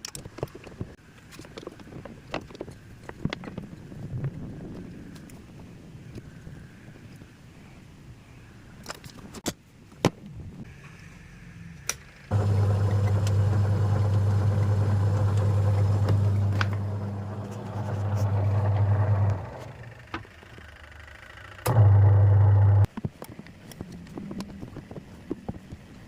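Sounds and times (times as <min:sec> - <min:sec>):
washing machine motor humming: 0:12.3 - 0:20.1, 0:21.7 - 0:22.9.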